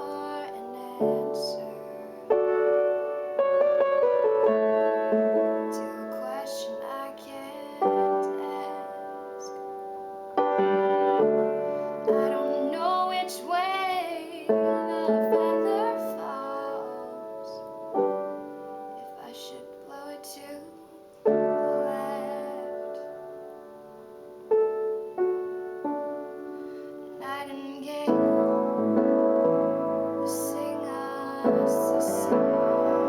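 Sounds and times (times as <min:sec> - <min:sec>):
woman singing: 0:00.0 - 0:02.6, 0:05.2 - 0:09.7, 0:12.0 - 0:18.1, 0:19.0 - 0:23.2, 0:27.1 - 0:33.0
slow piano chords: 0:00.0 - 0:33.0.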